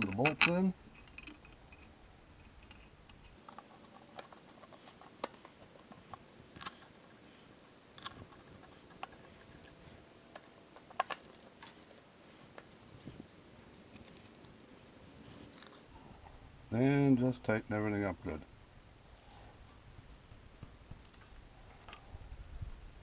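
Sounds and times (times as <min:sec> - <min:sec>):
metallic clinks of bolts and tools: 0:00.0 - 0:07.2, 0:08.0 - 0:12.0.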